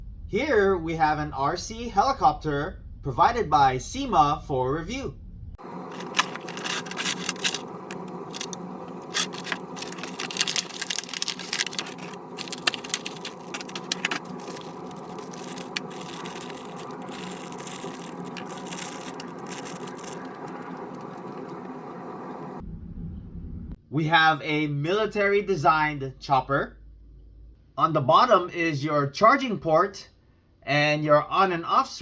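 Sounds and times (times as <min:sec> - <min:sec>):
constant hum: 0:00.0 - 0:23.8
hands handling toy and packaging: 0:05.6 - 0:21.7.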